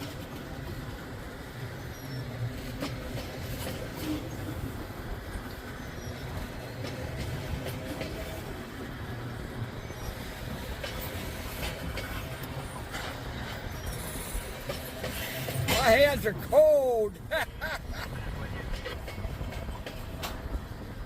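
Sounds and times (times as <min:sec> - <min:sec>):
train wheels rumbling on rail: 0:00.0 - 0:21.0
wheels clicking over rail joints: 0:00.0 - 0:21.0.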